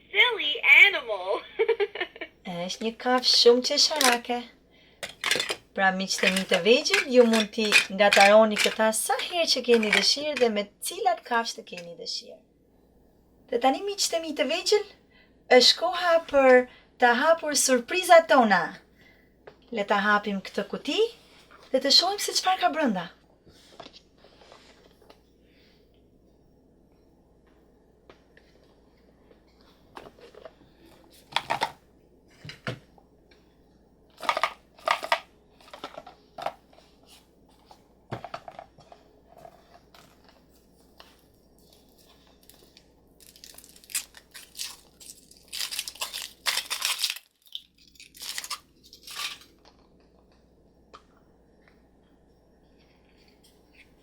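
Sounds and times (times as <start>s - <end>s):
packaging tearing and crinkling: 41.7s - 49.7s.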